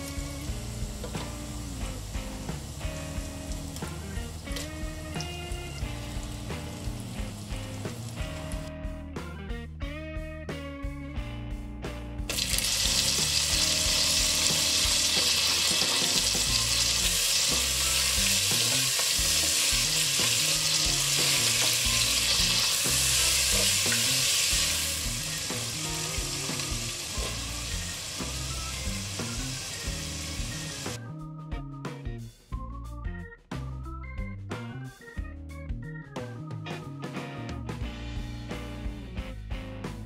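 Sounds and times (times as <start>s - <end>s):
ginger sizzling in hot oil: 0.0s - 8.7s, 12.3s - 31.0s.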